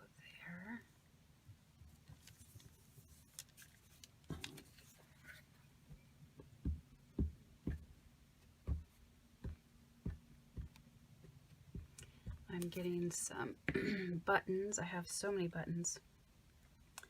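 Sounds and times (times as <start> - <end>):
short dull thumps: 5.9 - 13.0.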